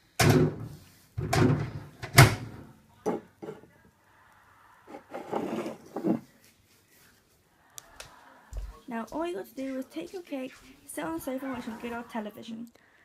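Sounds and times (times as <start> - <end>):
microwave door clunks: 1.3 - 2.6.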